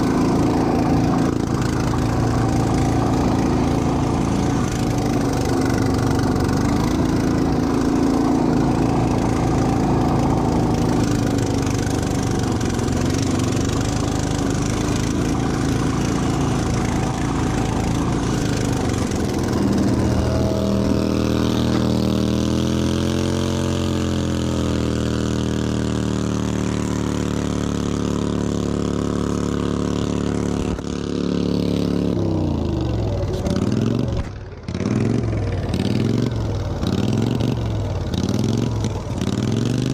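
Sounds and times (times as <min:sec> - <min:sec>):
lawnmower engines running: 0:00.0 - 0:39.9.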